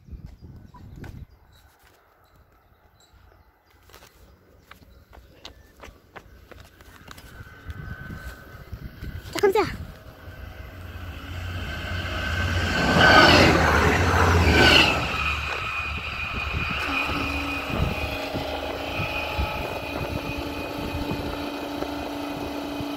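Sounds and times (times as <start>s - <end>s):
fast train passing: 6.0s - 22.9s.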